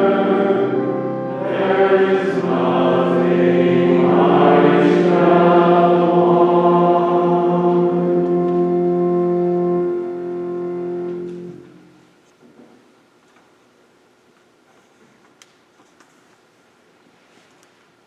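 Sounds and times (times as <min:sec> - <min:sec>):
voices singing church music: 0:00.0 - 0:11.6
long held accompaniment notes: 0:00.0 - 0:12.1.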